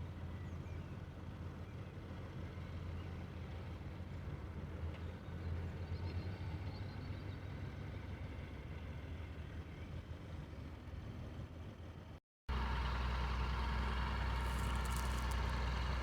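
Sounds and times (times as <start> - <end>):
tractor engine humming: 10.1 - 16.0.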